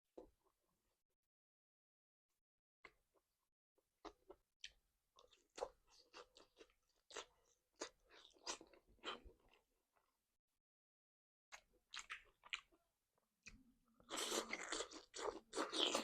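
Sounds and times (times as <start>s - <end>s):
person chewing crunchy food: 4.1s - 9.6s, 11.9s - 12.7s, 14.0s - 16.0s.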